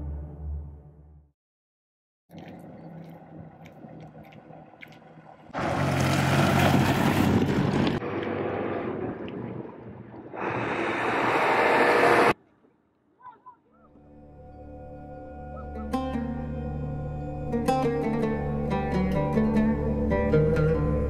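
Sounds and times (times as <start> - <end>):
wind noise: 6.3 - 12.3.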